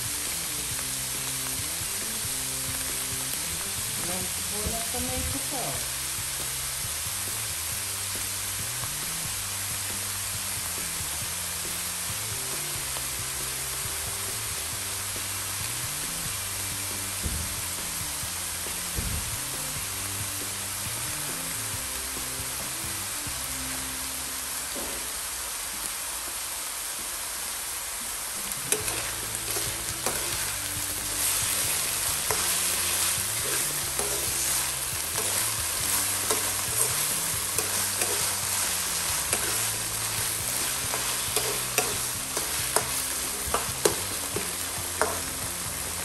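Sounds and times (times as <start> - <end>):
food sizzling in a wok: 0.0 - 46.0
metal spoon scraping: 28.7 - 30.6, 31.2 - 45.3.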